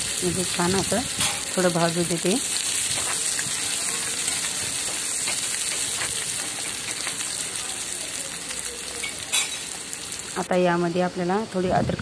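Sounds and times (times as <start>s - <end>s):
onions sizzling in oil: 0.0s - 11.8s.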